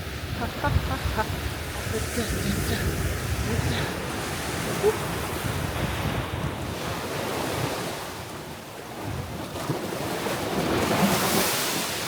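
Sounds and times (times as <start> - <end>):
wind on microphone: 0.0 - 8.4
surf washing onto beach: 0.0 - 12.0.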